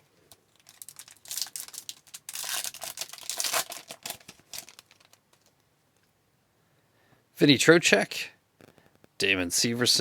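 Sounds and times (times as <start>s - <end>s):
foil wrapper tearing and crinkling: 0.5s - 5.5s.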